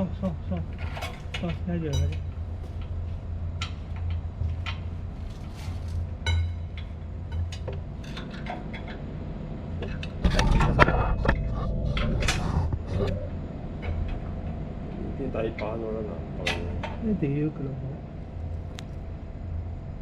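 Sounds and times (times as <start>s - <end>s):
steady low hum: 0.0s - 20.0s
metal clanking and scraping: 0.6s - 9.1s, 9.7s - 13.2s.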